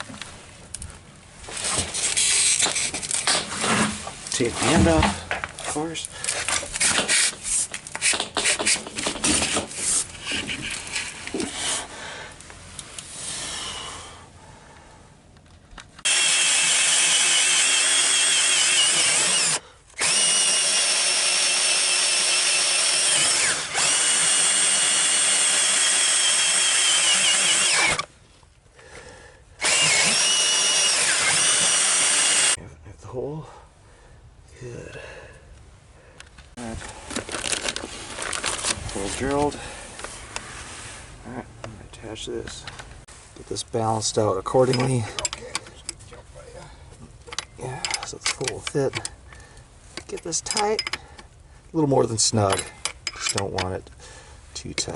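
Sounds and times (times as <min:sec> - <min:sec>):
handling clicks and scrapes: 0:00.0 - 0:11.9, 0:36.2 - 0:40.9, 0:44.5 - 0:46.2, 0:47.0 - 0:51.3, 0:52.3 - 0:54.0
electric power drill running: 0:16.0 - 0:28.1, 0:29.6 - 0:32.6.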